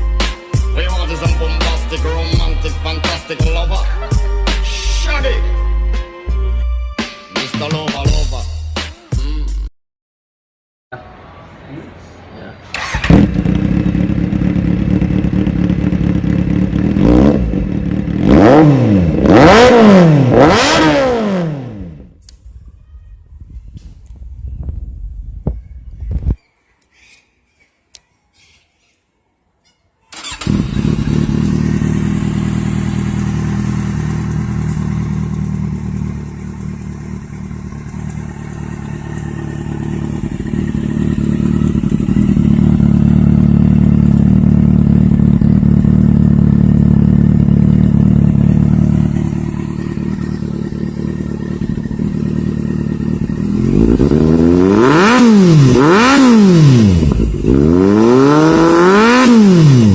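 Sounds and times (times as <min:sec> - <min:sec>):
motorcycle engine idling and revving: 0:12.7 - 0:22.3, 0:30.1 - 0:59.9.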